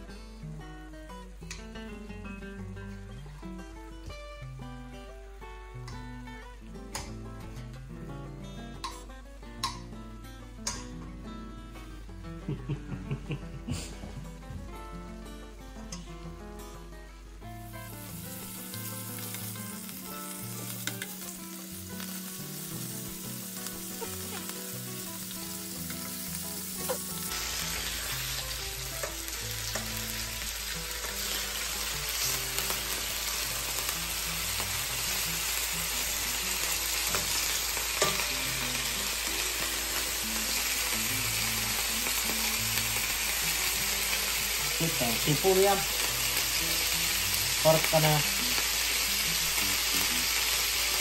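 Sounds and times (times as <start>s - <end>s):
pork sizzling in a frying pan: 17.2s - 51.0s.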